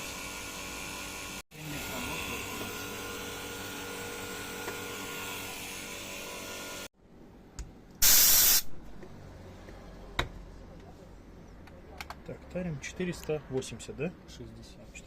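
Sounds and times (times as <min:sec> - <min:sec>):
air hissing: 0:08.0 - 0:08.7
loud burst of hiss: 0:08.0 - 0:08.7.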